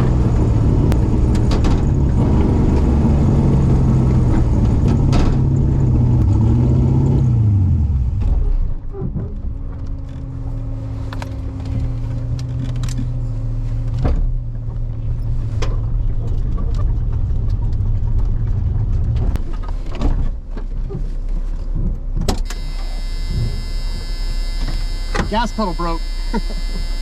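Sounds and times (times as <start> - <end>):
race car engine idling: 22.5 - 27.0.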